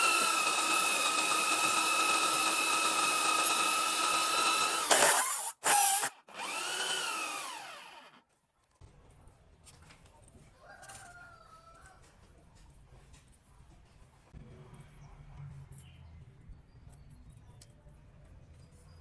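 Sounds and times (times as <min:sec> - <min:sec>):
power tool motor whining: 0:00.0 - 0:08.2.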